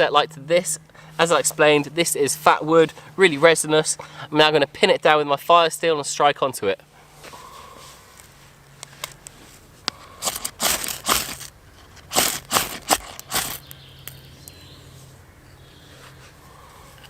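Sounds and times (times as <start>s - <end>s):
fire steel rasping scrapes: 9.9s - 13.7s.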